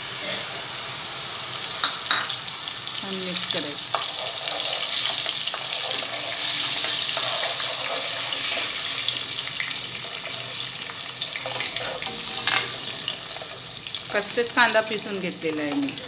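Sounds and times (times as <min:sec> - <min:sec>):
onion paste sizzling in hot oil: 0:00.0 - 0:16.0
spatula scraping a pan: 0:03.9 - 0:09.3, 0:09.9 - 0:14.0.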